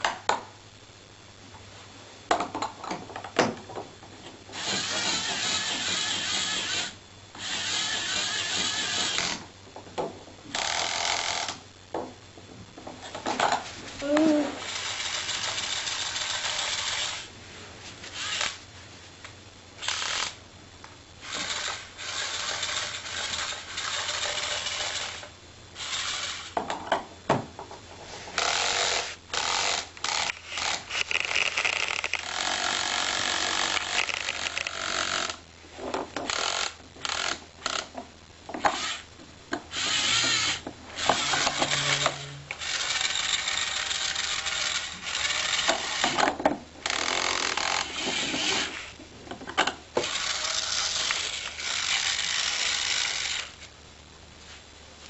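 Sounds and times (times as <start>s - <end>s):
electric drill running: 4.5s - 9.5s, 10.5s - 11.6s, 14.6s - 17.3s, 18.1s - 18.6s, 19.8s - 20.4s, 21.2s - 26.6s, 28.4s - 35.4s, 36.3s - 37.9s, 38.6s - 39.1s, 39.7s - 46.2s, 46.8s - 49.0s, 50.0s - 53.7s.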